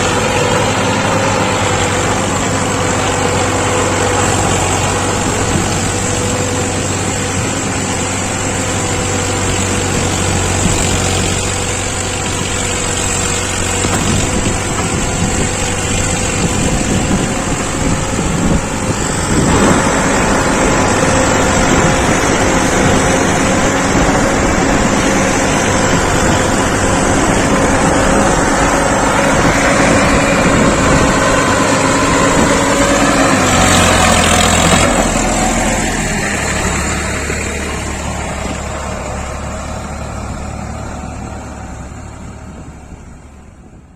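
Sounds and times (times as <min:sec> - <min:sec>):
heavy diesel engine running: 0:00.0 - 0:43.9.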